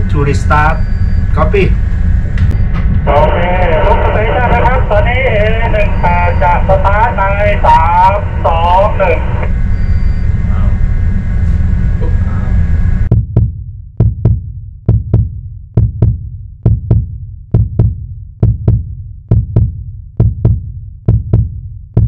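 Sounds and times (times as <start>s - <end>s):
low room hum: 0.0s - 15.2s
heartbeat thumps: 1.9s - 3.2s, 13.0s - 22.0s.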